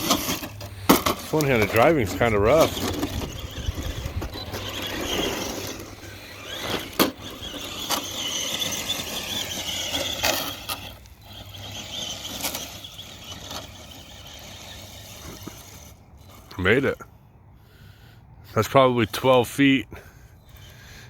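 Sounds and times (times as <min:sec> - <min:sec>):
toy truck knocking: 0:00.0 - 0:10.9
electric motor whining: 0:00.0 - 0:16.5.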